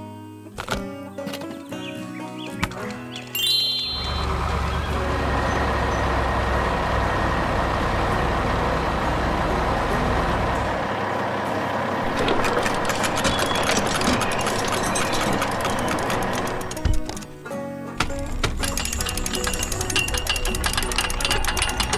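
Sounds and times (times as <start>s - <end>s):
diesel engine rumbling: 3.5s - 17.4s, 18.0s - 21.9s
fast rattling clatter: 12.0s - 17.4s, 18.0s - 21.9s.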